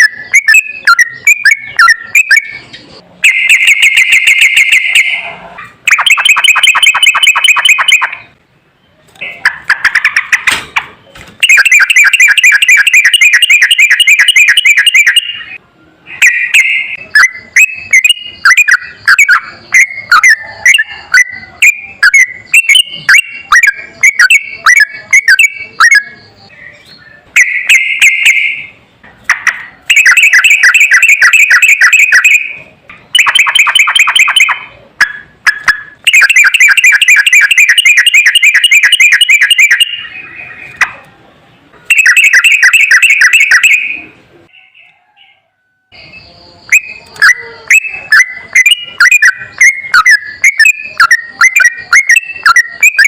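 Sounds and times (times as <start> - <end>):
bird chirping phrases: 0.0 - 53.0
bulbul song with rapid trills: 0.0 - 53.0.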